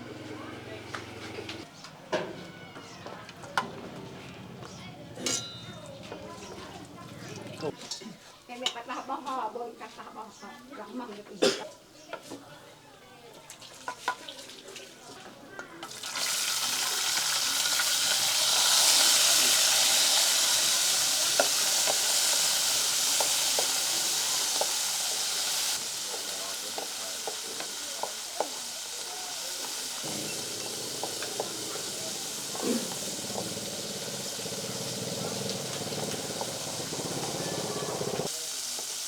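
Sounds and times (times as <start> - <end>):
frying sizzle in oil: 13.4 - 39.0
oil crackling: 15.9 - 39.0.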